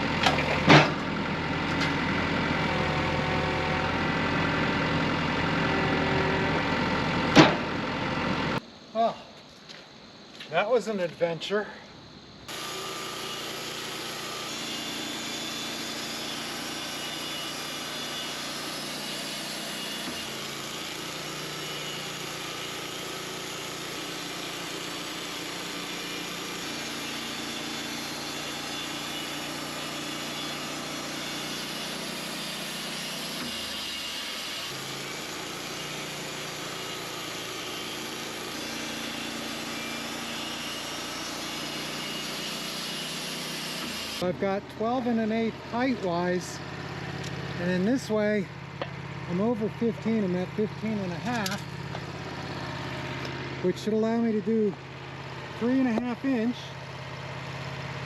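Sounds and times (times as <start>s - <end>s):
sawmill engine running: 0.0s - 8.6s, 12.5s - 58.0s.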